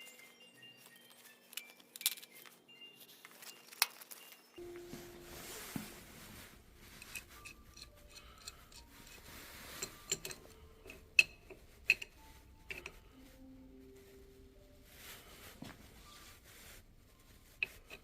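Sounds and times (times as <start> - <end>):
metal tools clicking and clinking: 1.1 - 2.6, 7.0 - 13.0.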